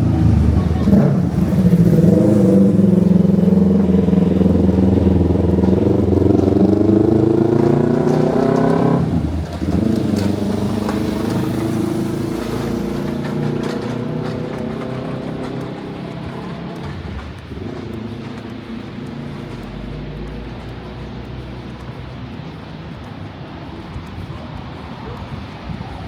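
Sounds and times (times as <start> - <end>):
vehicle engine accelerating: 0.0 - 26.0.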